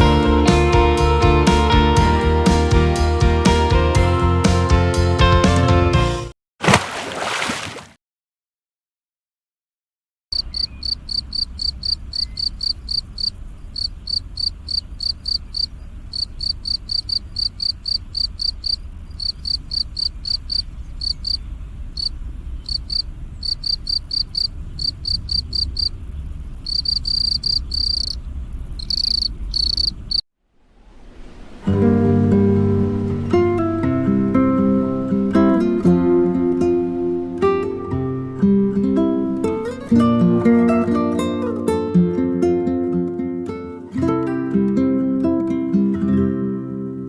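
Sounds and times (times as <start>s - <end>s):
cricket chirping: 10.4s - 21.4s, 22.0s - 30.2s.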